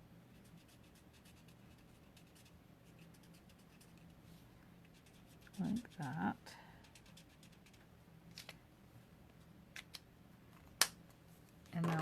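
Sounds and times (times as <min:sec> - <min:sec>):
low room hum: 0:00.0 - 0:12.0
felt marker scratching on cardstock: 0:00.4 - 0:04.1, 0:04.9 - 0:06.2, 0:06.8 - 0:07.8.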